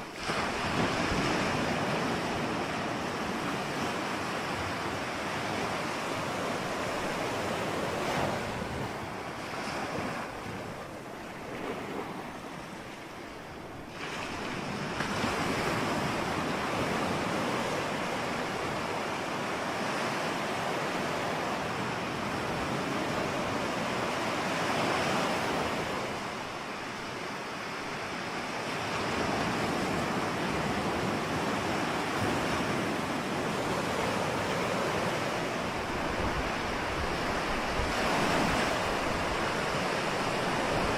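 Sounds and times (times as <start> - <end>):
waves breaking and washing in: 0.0 - 40.9
wave crashing: 32.0 - 40.9.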